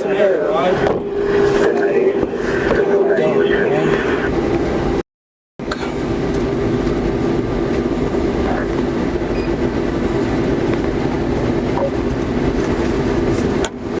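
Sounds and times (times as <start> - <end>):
vehicle rumble with low hum: 5.6 - 14.0.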